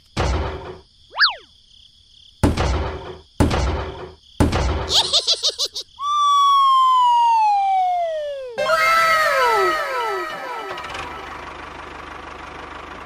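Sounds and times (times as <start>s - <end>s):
cartoon whistle falling in pitch: 6.0s - 11.4s
rapid warbling sound effect: 6.2s - 11.3s.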